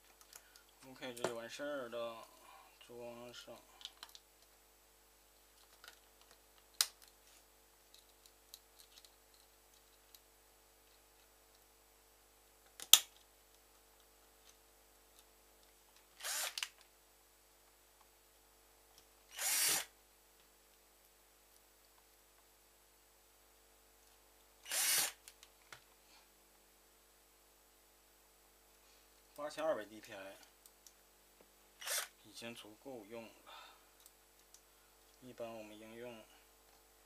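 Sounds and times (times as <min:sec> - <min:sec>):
electric screwdriver running: 0:16.2 - 0:16.7, 0:19.3 - 0:19.9, 0:24.6 - 0:25.2, 0:31.8 - 0:32.1.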